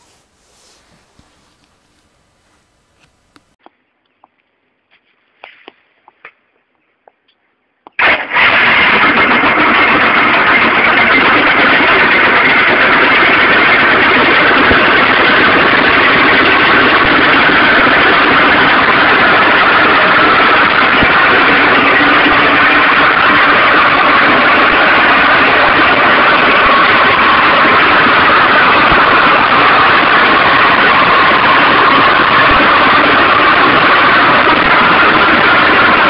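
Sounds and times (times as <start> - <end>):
scooter two-stroke engine running: 8.0 - 36.0.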